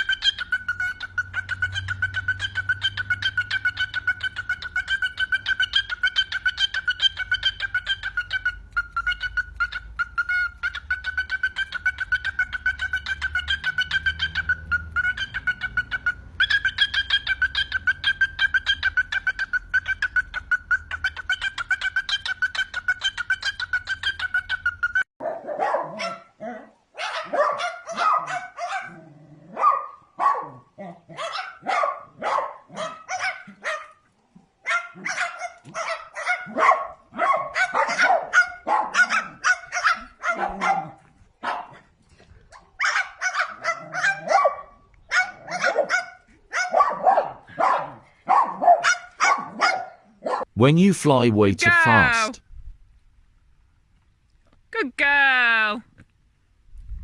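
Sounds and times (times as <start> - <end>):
short dog-like barks: 25.2 - 26.4, 27.0 - 34.0, 34.7 - 41.8, 42.8 - 50.4.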